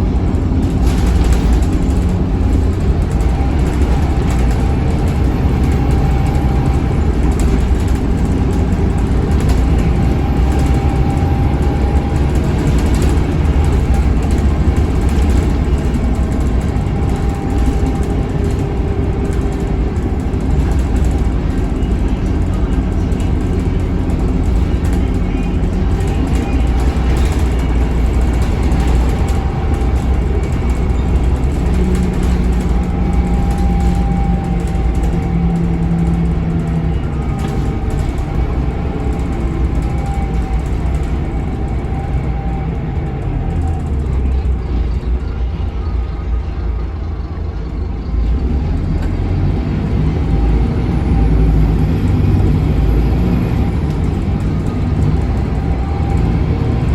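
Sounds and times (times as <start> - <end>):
bus diesel engine rumbling: 0.0 - 56.9.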